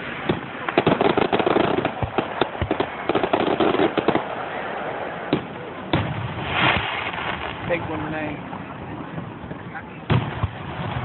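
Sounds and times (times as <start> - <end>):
fireworks crackling pops: 0.0 - 4.5, 5.3 - 8.3.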